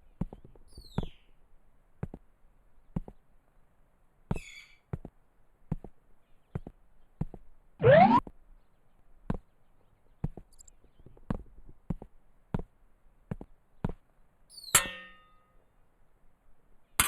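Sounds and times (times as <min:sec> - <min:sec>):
ringing metallic clang: 0:14.6 - 0:15.5.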